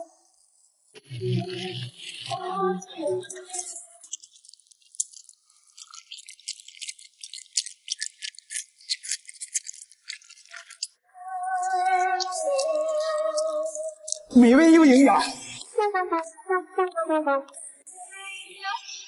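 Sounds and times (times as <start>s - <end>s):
food crackling: 3.1s - 11.0s, 11.6s - 15.8s.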